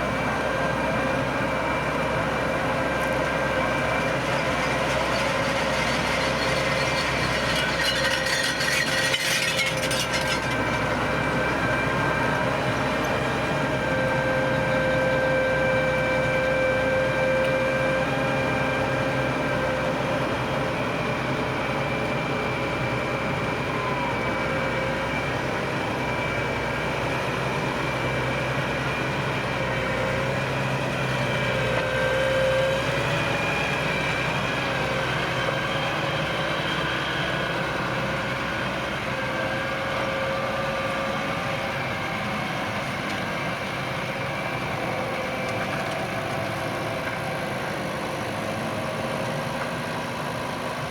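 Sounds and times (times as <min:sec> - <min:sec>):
tractor engine: 0:00.0 - 0:50.9
rattling clatter: 0:04.1 - 0:10.8.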